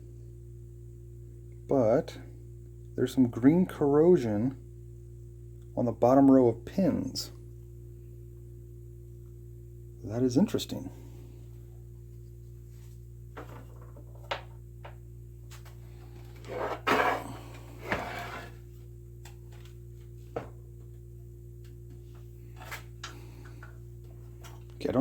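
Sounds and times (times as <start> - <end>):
low electrical hum: 0.0 - 25.0
scraping and rustling: 15.5 - 18.7.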